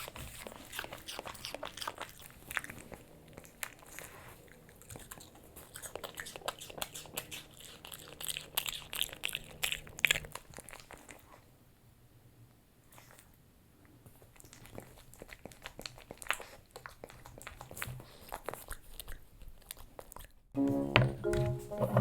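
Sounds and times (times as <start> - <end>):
dog crunching a hard treat: 0.0 - 11.4.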